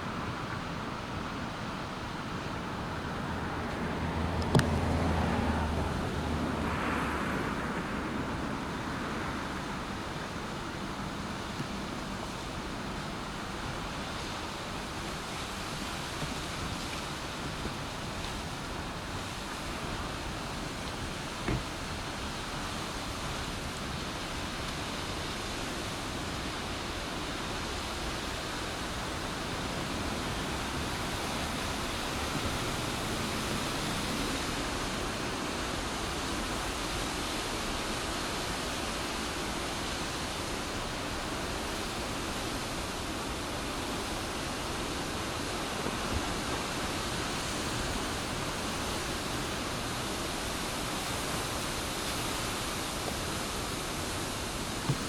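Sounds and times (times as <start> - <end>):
floodwater rushing: 0.0 - 55.0
small click: 4.4 - 4.8.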